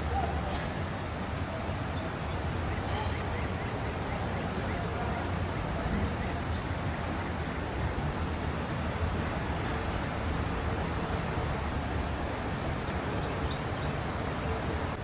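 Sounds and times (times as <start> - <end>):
outdoor ambient wash: 0.0 - 15.0.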